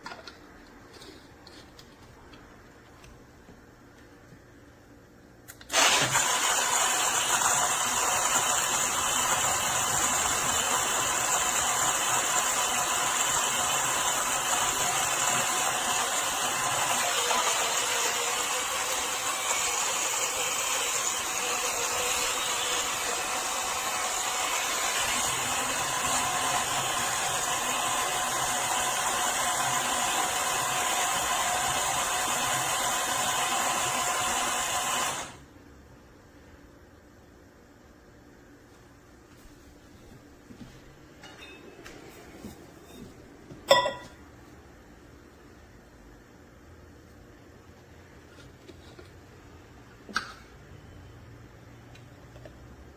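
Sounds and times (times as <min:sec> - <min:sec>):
mini blender running: 0:05.7 - 0:35.4.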